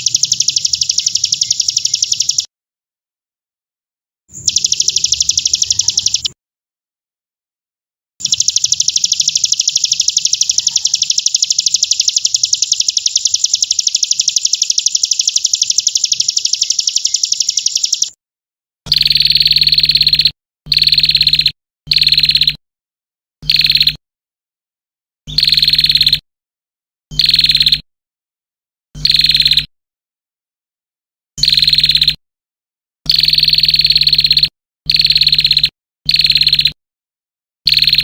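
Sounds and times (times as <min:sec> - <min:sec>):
songbird trilling: 0:00.0 - 0:02.5, 0:04.3 - 0:06.4, 0:08.2 - 0:18.2, 0:18.9 - 0:22.5, 0:23.5 - 0:23.9, 0:25.4 - 0:26.2.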